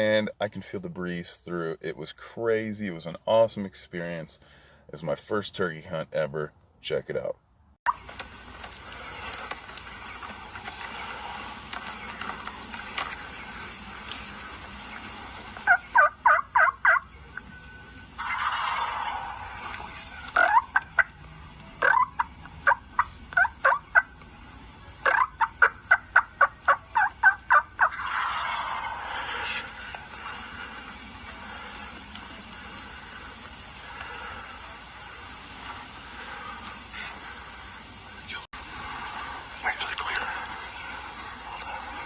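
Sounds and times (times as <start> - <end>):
turkey gobble: 13.3 - 17.2, 18.1 - 21.2, 21.8 - 24.2, 25.0 - 30.0
turkey yelping: 15.0 - 17.2, 18.2 - 19.7, 20.3 - 21.2, 21.8 - 24.2, 25.0 - 29.7.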